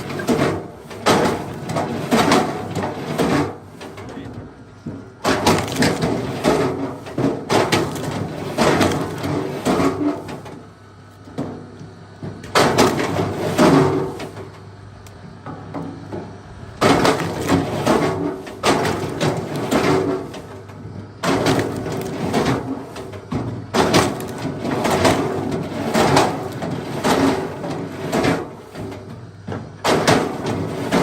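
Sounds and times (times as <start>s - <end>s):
wooden knocks and cracks: 4.8s - 10.5s, 15.4s - 31.0s.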